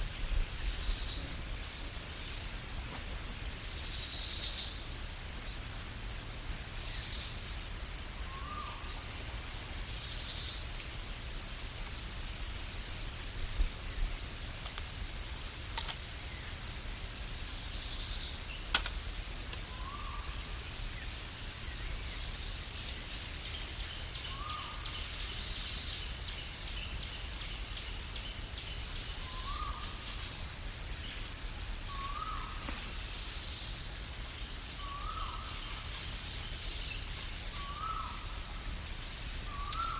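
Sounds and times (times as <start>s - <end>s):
insects chorus pulsing: 0.0s - 39.9s
sharp click: 18.7s - 19.0s.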